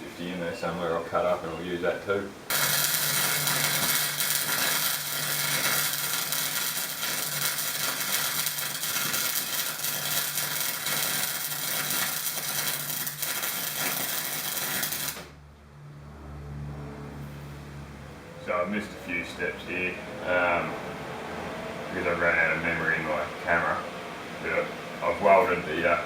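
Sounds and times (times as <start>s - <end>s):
abrasive disc grinding steel: 2.5s - 15.2s.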